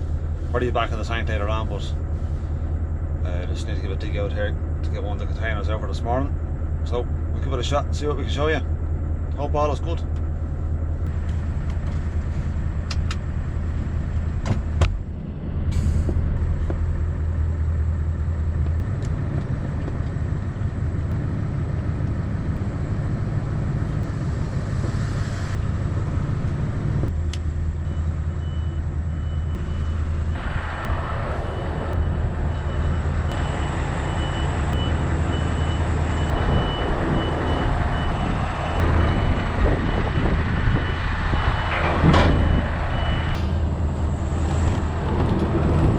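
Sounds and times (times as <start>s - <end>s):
truck engine running: 0.0s - 45.9s
reversing alarm beeping: 27.8s - 43.8s.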